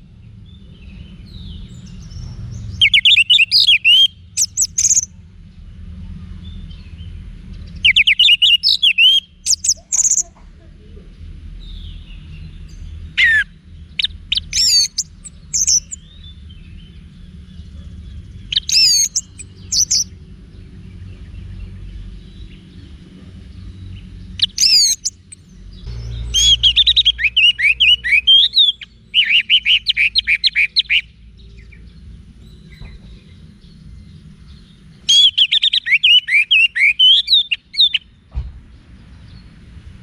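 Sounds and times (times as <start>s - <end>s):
low steady hum: 0.0s - 35.1s
thrush singing: 24.4s - 31.0s.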